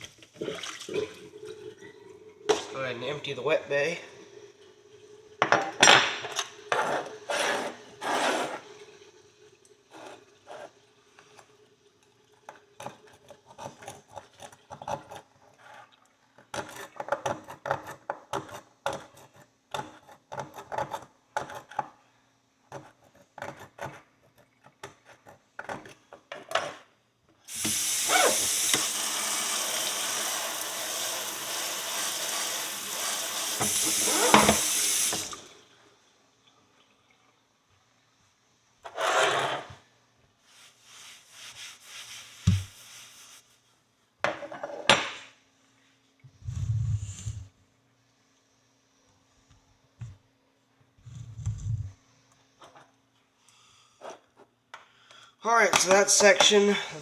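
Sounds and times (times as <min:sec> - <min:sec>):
kitchen tap running into sink: 0:00.0 - 0:15.2, 0:27.5 - 0:35.8, 0:41.6 - 0:43.3.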